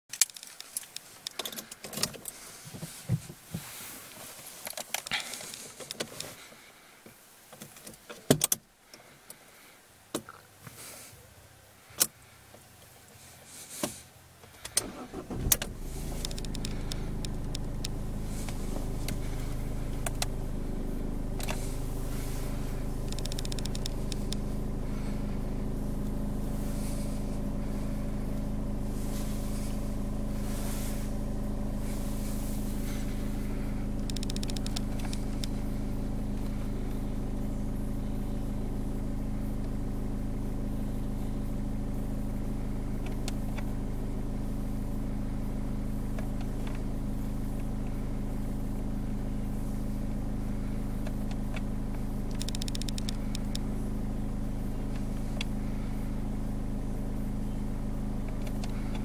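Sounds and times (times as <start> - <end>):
diesel engine starting and idling: 13.2 - 59.0.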